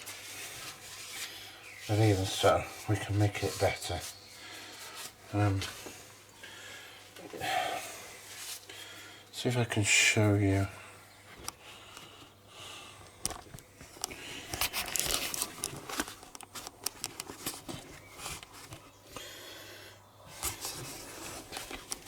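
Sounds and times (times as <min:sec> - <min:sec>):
rustling at a workbench: 0:00.0 - 0:07.4, 0:08.0 - 0:09.1, 0:13.2 - 0:19.2, 0:20.2 - 0:22.0.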